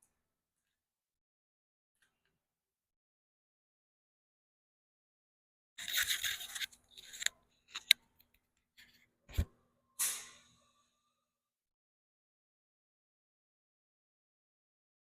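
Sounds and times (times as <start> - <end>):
handling rustling and scraping: 5.8 - 8.0.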